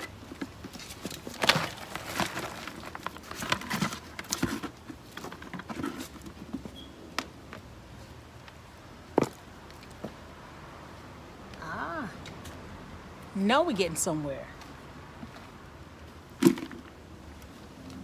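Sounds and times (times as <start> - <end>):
soil rustling and crumbling: 0.0 - 10.5.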